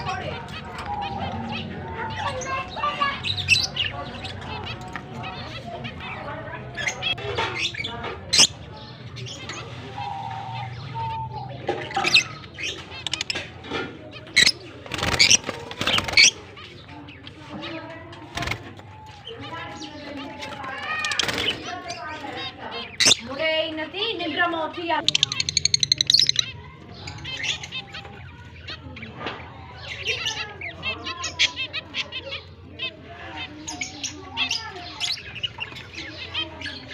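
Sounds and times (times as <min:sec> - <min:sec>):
lovebirds squawking: 0:00.0 - 0:36.9
wings fluttering: 0:14.4 - 0:16.4, 0:18.2 - 0:19.3.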